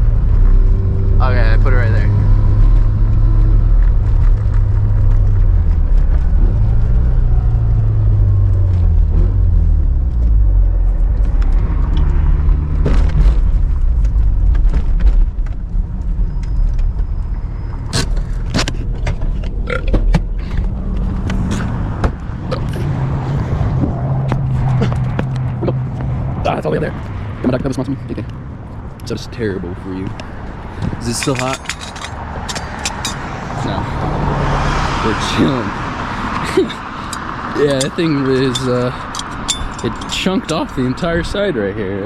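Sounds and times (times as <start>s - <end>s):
engine running: 0.0s - 42.0s
sharp clicks and knocks: 30.8s - 33.2s, 37.1s - 40.7s.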